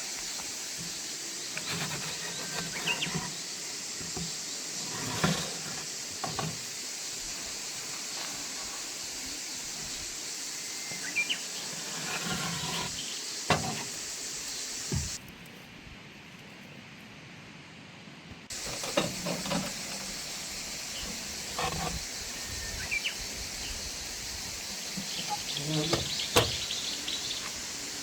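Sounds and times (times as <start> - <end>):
steady high hiss: 0.0 - 28.0.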